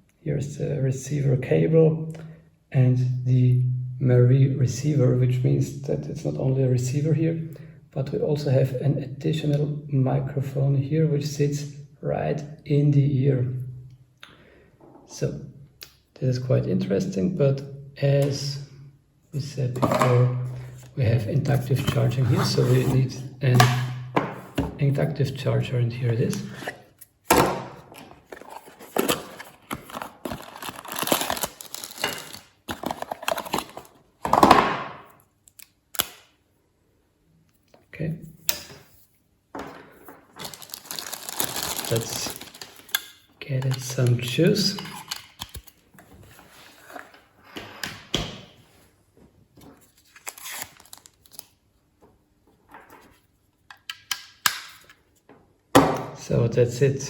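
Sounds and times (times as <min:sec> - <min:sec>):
cardboard and plastic rustling: 0:27.9 - 0:34.1, 0:39.9 - 0:43.0.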